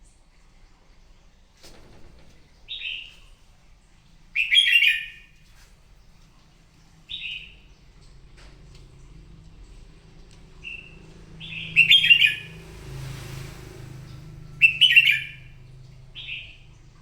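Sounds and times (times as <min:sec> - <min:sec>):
bird whistling song: 0:04.4 - 0:05.3, 0:07.1 - 0:07.6, 0:10.6 - 0:13.0, 0:14.1 - 0:16.8.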